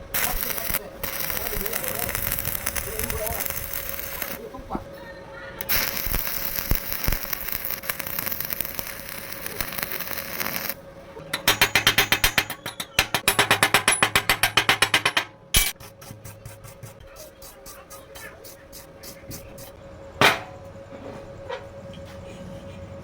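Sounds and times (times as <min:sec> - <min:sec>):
crackling and hissing: 0:00.0 - 0:04.8, 0:05.6 - 0:10.8.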